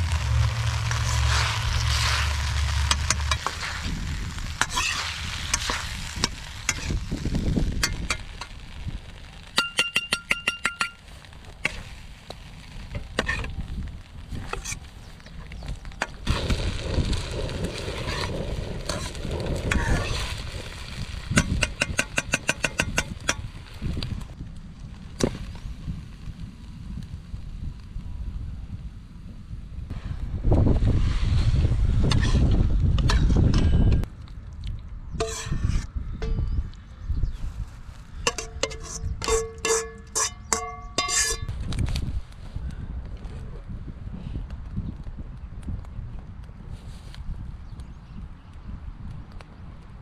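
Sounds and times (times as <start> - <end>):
ladle scraping a wok: 0.0 - 7.1, 17.7 - 20.4, 32.1 - 33.8, 35.2 - 36.4, 38.2 - 41.5
food sizzling in a wok: 0.0 - 9.5, 16.3 - 24.0.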